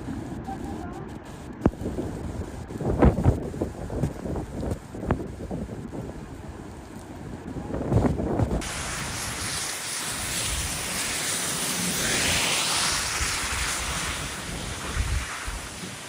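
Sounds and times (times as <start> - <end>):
rushing storm noise: 0.0 - 16.0
wind buffeting microphone: 0.0 - 16.0.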